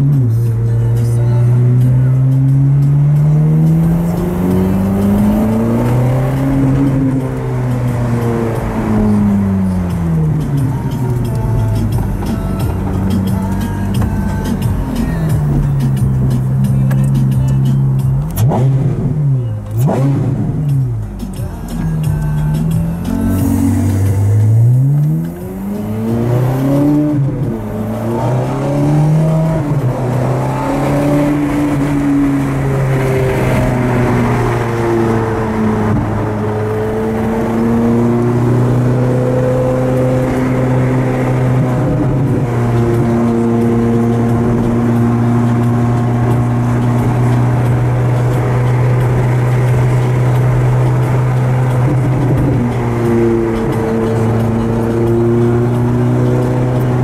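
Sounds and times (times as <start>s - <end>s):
car engine drone: 0.0s - 57.0s.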